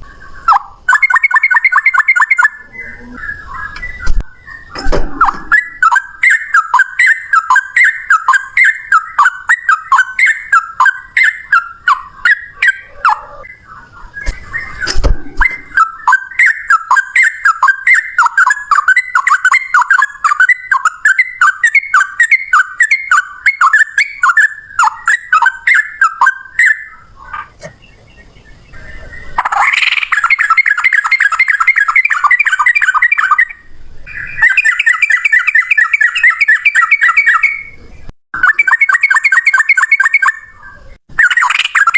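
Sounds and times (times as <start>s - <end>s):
bird singing whistled notes: 0.0s - 27.1s, 27.7s - 41.9s.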